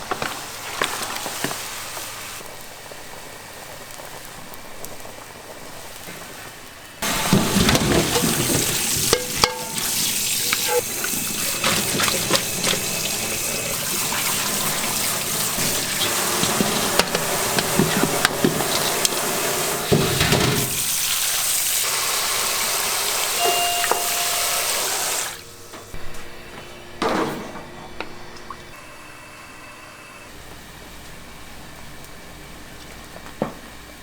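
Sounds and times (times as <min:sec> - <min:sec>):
tap water running: 0:07.0 - 0:26.0.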